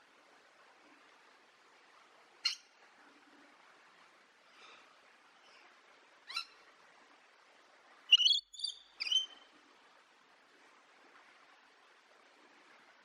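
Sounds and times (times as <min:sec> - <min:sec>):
parrot calling: 0:08.1 - 0:09.4.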